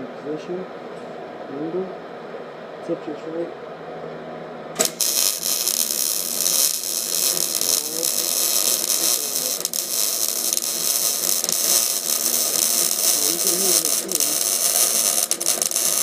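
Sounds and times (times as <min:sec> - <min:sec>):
welding arc buzzing hiss: 0:04.8 - 0:16.0
welding pops: 0:04.8 - 0:16.0.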